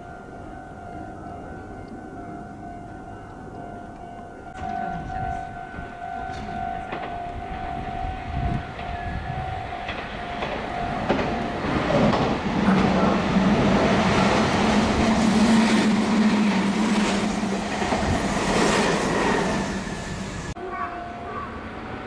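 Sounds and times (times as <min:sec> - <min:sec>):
train wheels clattering on rails: 0:04.5 - 0:20.6.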